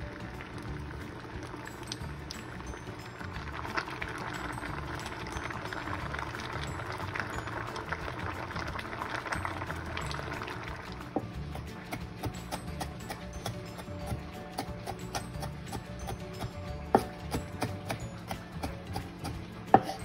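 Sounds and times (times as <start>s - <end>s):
soft background music: 0.0s - 20.0s.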